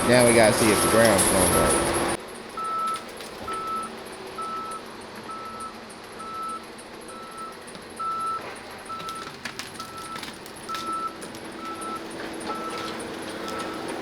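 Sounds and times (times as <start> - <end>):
faint machine noise: 0.0 - 14.0
vehicle backup alarm beeping: 0.0 - 14.0.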